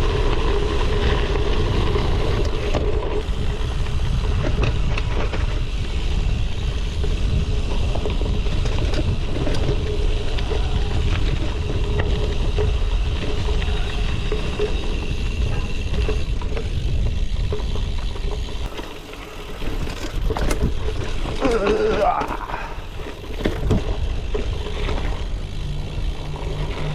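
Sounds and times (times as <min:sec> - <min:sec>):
bike rolling over gravel: 0:00.0 - 0:26.9
wind buffeting microphone: 0:00.0 - 0:26.9.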